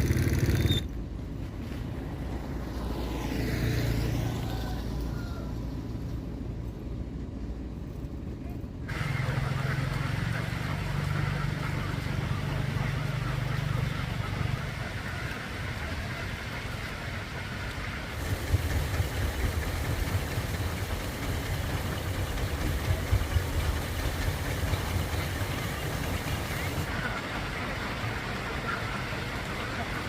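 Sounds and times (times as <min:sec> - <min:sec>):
vehicle engine idling: 0:08.9 - 0:30.0.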